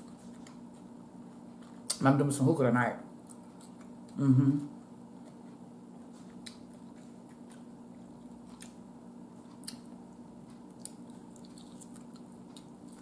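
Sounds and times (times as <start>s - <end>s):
steady low hum: 0.0s - 13.0s
wet chewing and mouth smacks: 5.2s - 8.8s, 9.4s - 13.0s.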